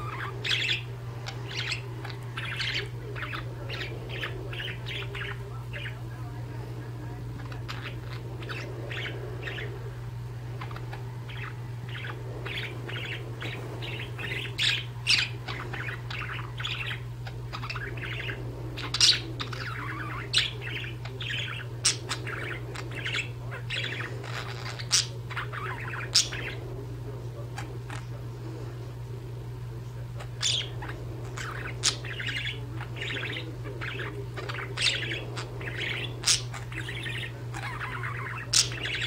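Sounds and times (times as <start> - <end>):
budgerigar squawks: 0.0 - 6.0, 30.2 - 39.0
budgerigars chirping: 0.0 - 28.8, 30.0 - 39.0
low hum: 0.0 - 39.0.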